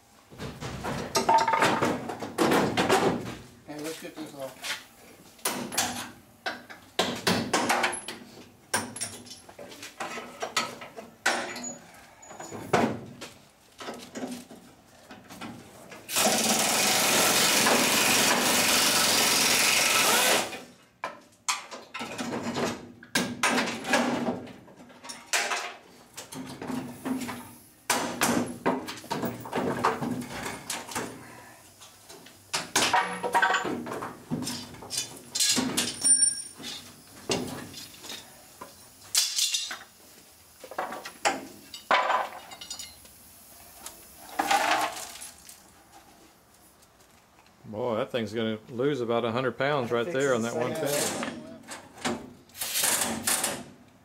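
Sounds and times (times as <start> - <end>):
power tool running: 16.1 - 20.6.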